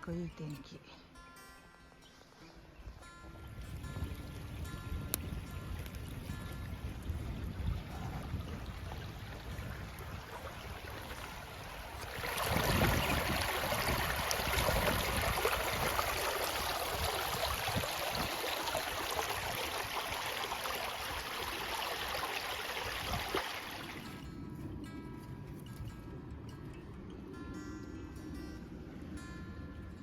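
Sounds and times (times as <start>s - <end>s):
water rushing and splashing: 6.3s - 24.2s.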